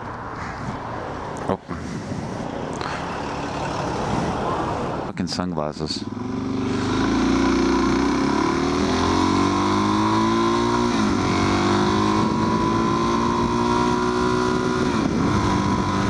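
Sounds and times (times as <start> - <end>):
motorcycle engine accelerating: 5.9 - 16.0.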